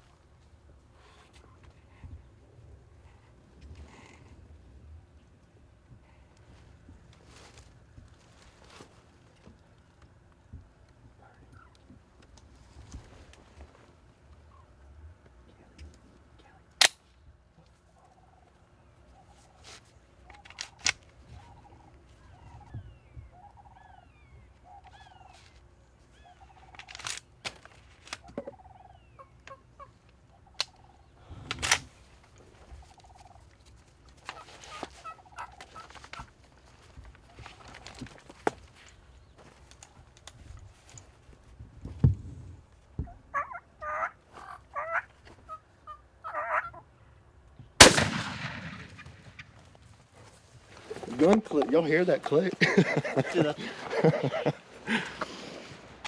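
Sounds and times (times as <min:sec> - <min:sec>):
turkeys calling: 0:17.8 - 0:31.2, 0:32.6 - 0:33.6, 0:34.3 - 0:36.4, 0:43.0 - 0:47.1
turkey gobbles: 0:21.3 - 0:25.4, 0:34.3 - 0:36.3, 0:43.0 - 0:47.0.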